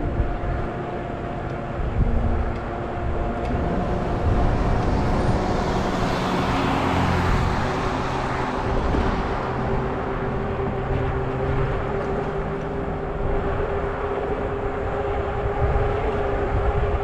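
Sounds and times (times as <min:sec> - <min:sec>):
low traffic rumble: 0:00.0 - 0:17.0
car passing: 0:03.2 - 0:16.5.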